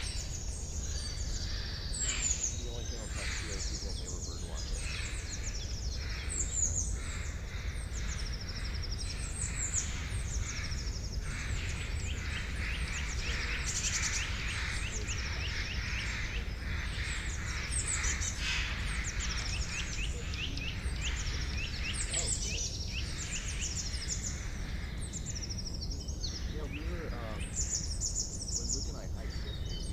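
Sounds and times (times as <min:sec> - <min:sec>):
songbirds chirping and singing: 0:00.0 - 0:29.9
steady low rumble: 0:09.0 - 0:29.9.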